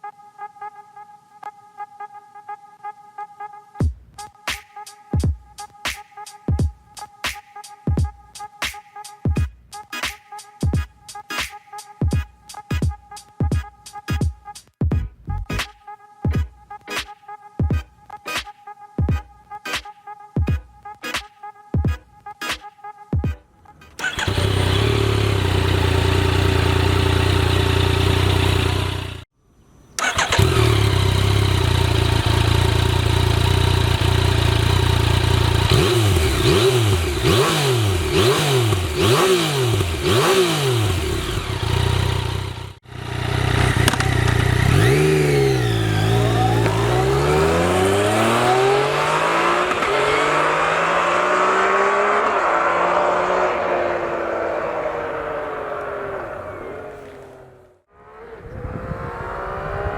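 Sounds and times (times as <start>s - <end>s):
motorcycle engine idling and revving: 24.0s - 29.3s, 30.0s - 59.9s.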